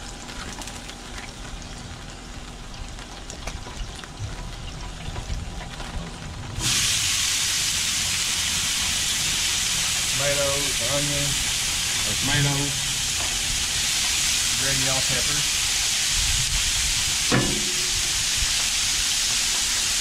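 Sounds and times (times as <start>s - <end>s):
oil crackling on griddle: 0.0s - 20.0s
vegetables sizzling: 6.6s - 20.0s.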